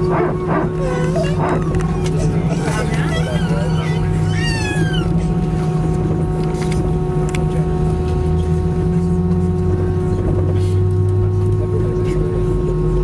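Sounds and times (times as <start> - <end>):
steady tones: 0.0 - 5.6
low hum: 0.0 - 7.2
jet engine and cabin air drone: 0.0 - 9.0.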